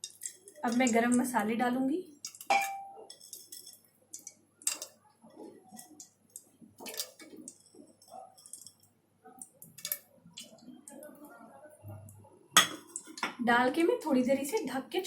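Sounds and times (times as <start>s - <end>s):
spices dropped into oil: 0.0s - 1.4s, 2.1s - 5.0s, 5.7s - 11.0s.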